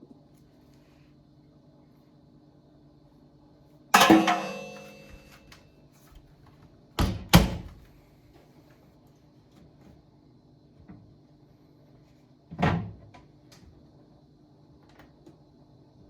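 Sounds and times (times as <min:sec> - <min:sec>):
loud ringing knock: 0:04.0 - 0:05.4.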